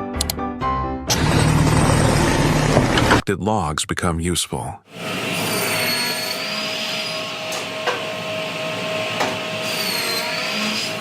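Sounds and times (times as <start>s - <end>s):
machine running with high whine: 1.1s - 3.2s, 4.9s - 11.0s.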